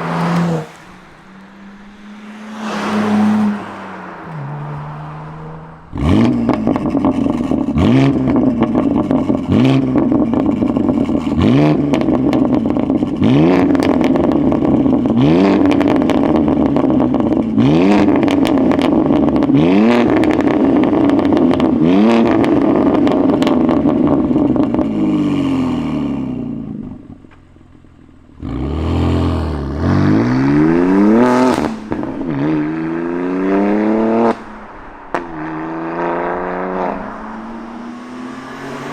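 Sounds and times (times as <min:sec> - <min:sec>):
loud car engine revving: 0:00.0 - 0:27.0, 0:28.4 - 0:38.9.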